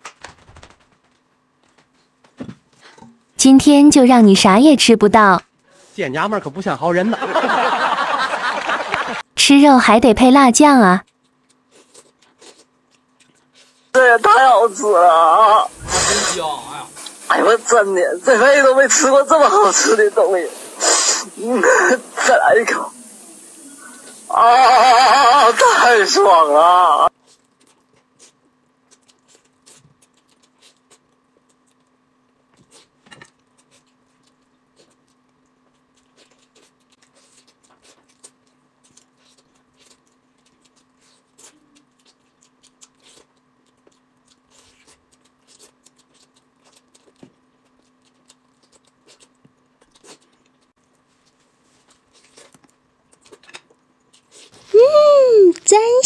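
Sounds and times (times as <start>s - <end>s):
faint steady hum: 0.3s - 56.0s
chewing and gnawing: 11.0s - 13.9s, 27.1s - 54.7s.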